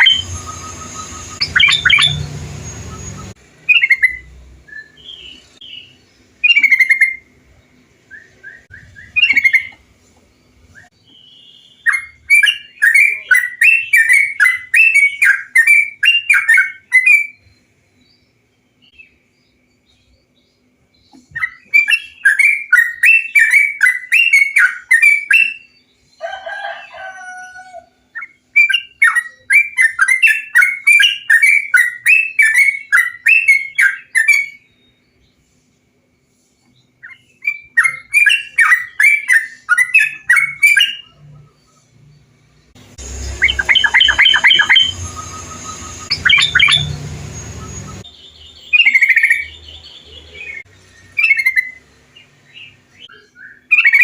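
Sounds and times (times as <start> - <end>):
bulbul song: 0.0 - 54.0
low drawn-out bird call: 43.0 - 51.8.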